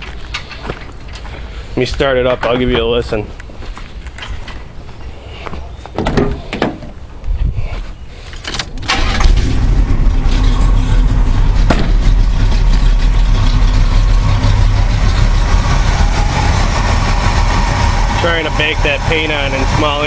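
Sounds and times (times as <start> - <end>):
car engine starting and idling: 8.3 - 20.0.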